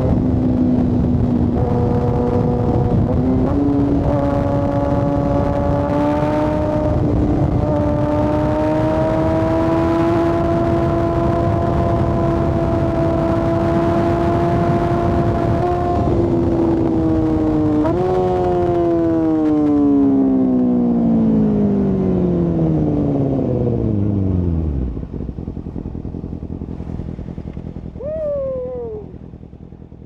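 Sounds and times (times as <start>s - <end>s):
steady rushing noise: 0.0s - 9.4s, 23.7s - 30.0s
motorcycle engine at high revs: 0.0s - 30.0s.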